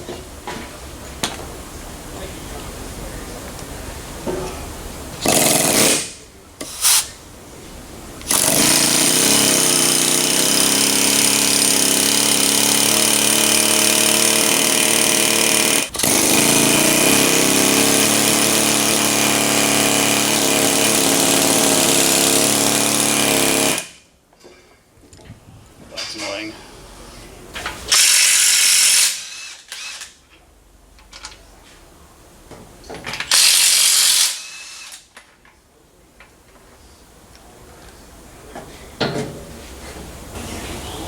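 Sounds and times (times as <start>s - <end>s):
pneumatic impact tool hammering: 5.2s - 7.1s, 8.2s - 24.0s, 27.9s - 30.2s, 33.3s - 35.1s.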